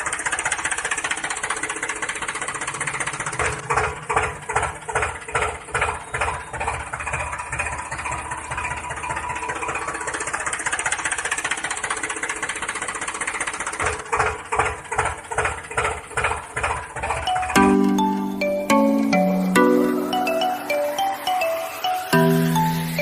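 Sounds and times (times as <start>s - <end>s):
small model tractor motor running: 0.0s - 17.2s.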